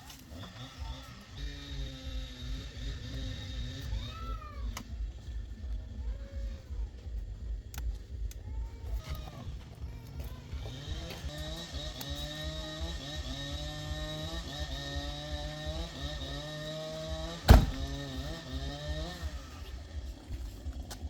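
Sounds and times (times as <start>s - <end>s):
motor running steadily: 0.0s - 21.0s
sharp loud knock: 17.5s - 17.9s.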